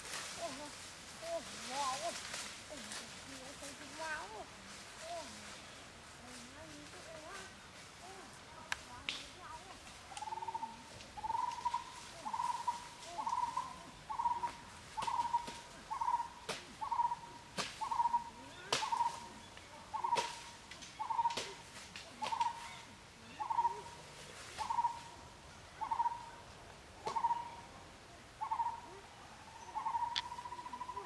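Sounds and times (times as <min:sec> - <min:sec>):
footsteps crackling on dry leaves: 0:00.0 - 0:25.2
bird hooting: 0:10.2 - 0:21.5, 0:22.2 - 0:24.0, 0:24.6 - 0:25.1, 0:25.8 - 0:26.4, 0:27.0 - 0:27.7, 0:28.4 - 0:31.0.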